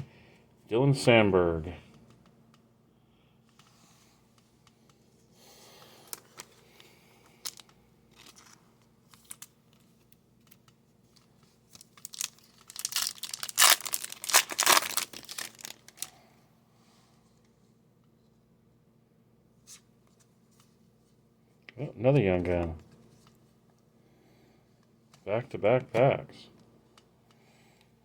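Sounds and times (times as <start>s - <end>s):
foil wrapper crinkling: 7.4s - 9.5s, 11.2s - 16.2s.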